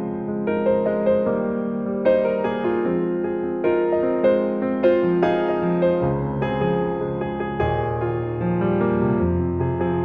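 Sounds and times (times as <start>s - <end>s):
soft piano music: 0.0s - 10.0s.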